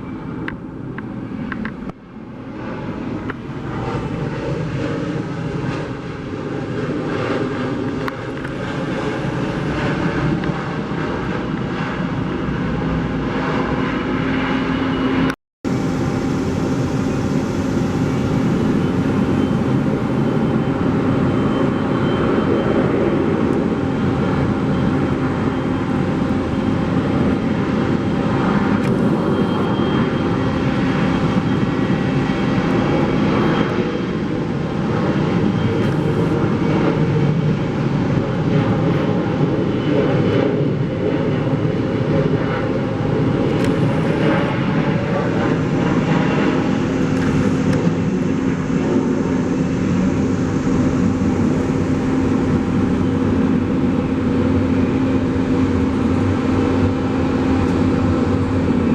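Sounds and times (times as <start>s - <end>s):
jet engine noise: 0.0s - 58.9s
steady low tone: 13.4s - 58.9s.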